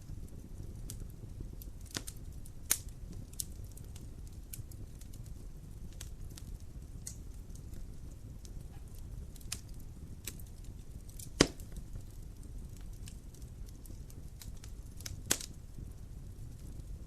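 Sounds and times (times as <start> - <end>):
fire flames rumbling: 0.0 - 17.0
firewood popping and crackling: 0.0 - 17.0
loud sharp wood crack: 11.3 - 11.7.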